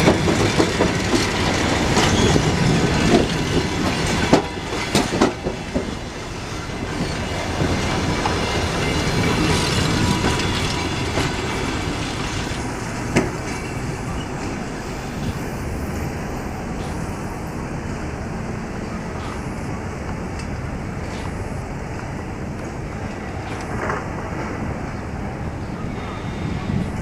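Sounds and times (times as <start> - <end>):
train wheels clacking on rail joints: 0.0 - 17.3.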